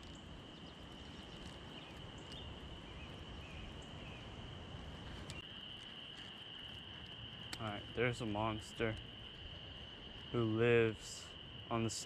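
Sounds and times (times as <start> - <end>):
high-pitched insect trill: 0.0 - 12.0
low rumble of wind: 0.0 - 12.0.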